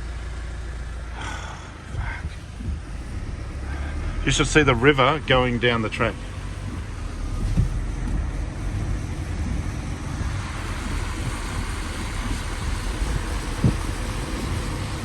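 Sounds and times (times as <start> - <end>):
engine and road rumble: 0.0 - 15.0
thump: 7.4 - 8.2
hiss: 8.5 - 15.0.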